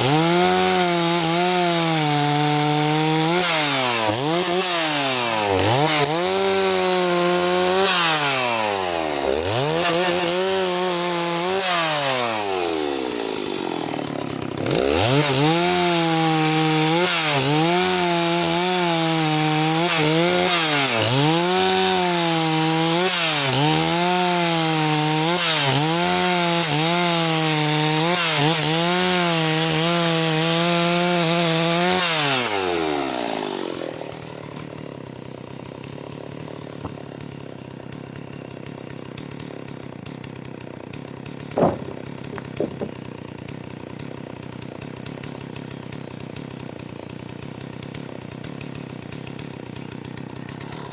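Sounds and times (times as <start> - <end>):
chainsaw running at high revs: 0.0 - 50.9
sharp knock: 41.6 - 43.0.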